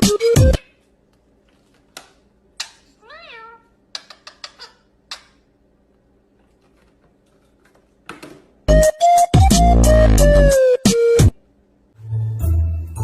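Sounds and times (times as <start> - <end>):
cat meowing: 3.0 - 3.7.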